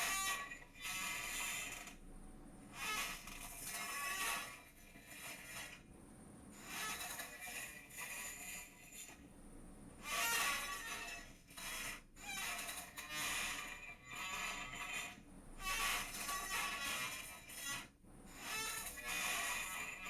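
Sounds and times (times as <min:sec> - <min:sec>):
chair creaking and squeaking: 0:00.0 - 0:02.0, 0:02.8 - 0:05.8, 0:06.6 - 0:08.2, 0:10.0 - 0:20.0.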